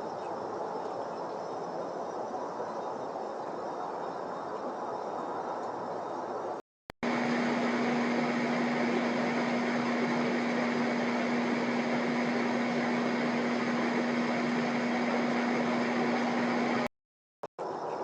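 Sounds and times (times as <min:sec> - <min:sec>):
mechanical whirring with humming tone: 0:07.0 - 0:16.9.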